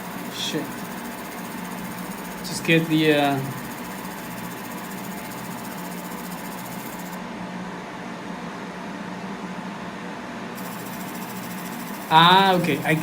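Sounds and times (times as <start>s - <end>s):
machine whirring: 0.0s - 7.2s, 10.6s - 13.0s.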